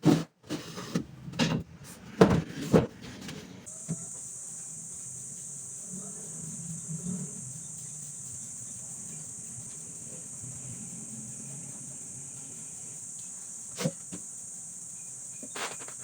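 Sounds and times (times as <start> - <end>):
high-pitched insect drone: 3.7 - 16.0.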